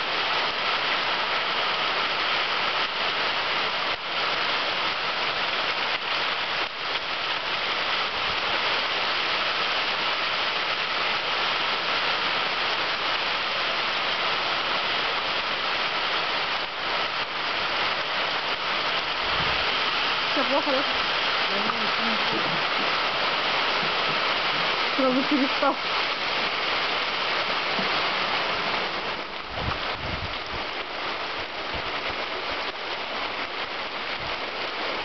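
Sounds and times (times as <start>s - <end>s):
hail knocking on a roof: 19.2s - 25.6s.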